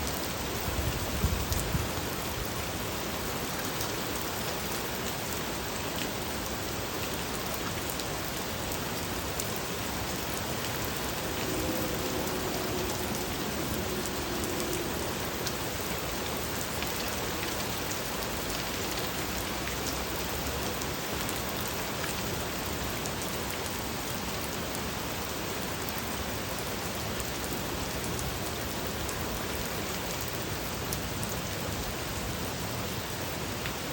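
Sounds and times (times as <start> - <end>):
steady rain falling: 0.0 - 33.9
faint pitched sound: 9.9 - 17.6.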